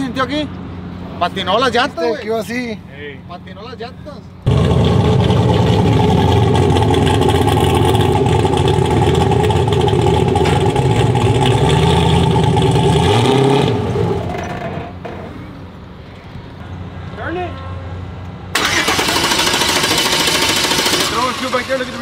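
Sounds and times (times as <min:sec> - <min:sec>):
truck engine running loud: 0:04.5 - 0:15.1.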